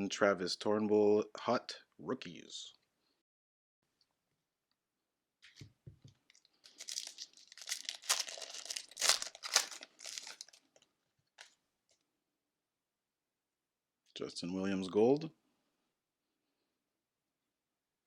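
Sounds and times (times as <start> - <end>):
card pack wrapper tearing: 6.6 - 10.8.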